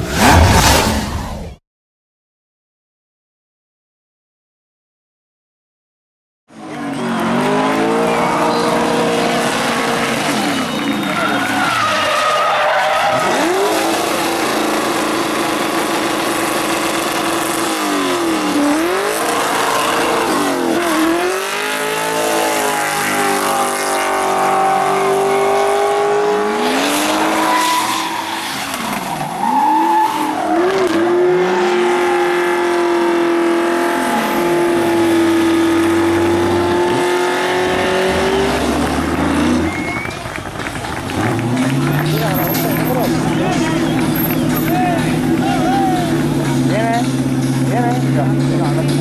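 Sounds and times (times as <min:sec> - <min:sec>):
car engine revving hard: 0:06.6 - 0:49.0
tyre squeal: 0:26.9 - 0:30.7, 0:39.5 - 0:40.3, 0:42.0 - 0:46.3.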